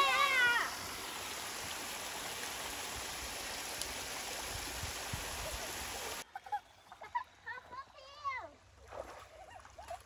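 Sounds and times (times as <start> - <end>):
flowing water rushing: 0.0 - 6.2.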